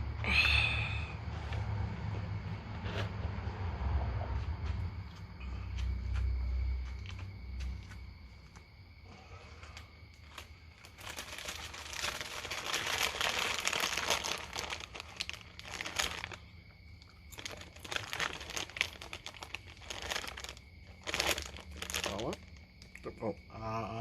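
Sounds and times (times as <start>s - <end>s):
crinkling rustling handling noise: 10.1s - 16.5s, 17.3s - 23.0s.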